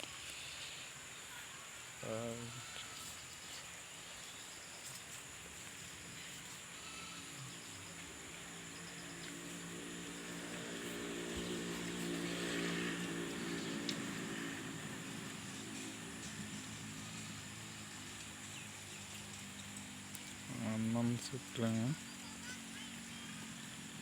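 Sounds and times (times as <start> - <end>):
high insect-like buzz: 0.1 - 24.0
motor engine humming: 7.3 - 24.0.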